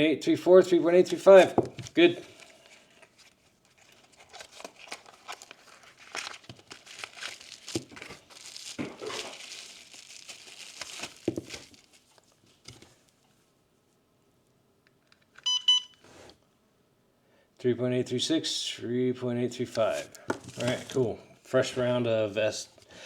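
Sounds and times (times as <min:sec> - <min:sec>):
plastic packaging crinkling and tearing: 0:02.3 - 0:12.7, 0:19.9 - 0:21.0
short electronic beep: 0:15.4 - 0:16.0.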